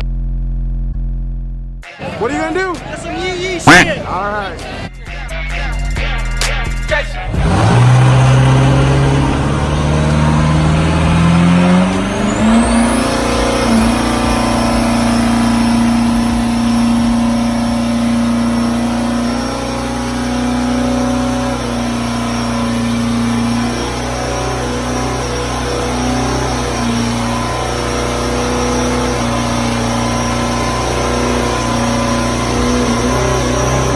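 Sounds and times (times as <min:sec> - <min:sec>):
vehicle engine revving: 0:01.8 - 0:33.9.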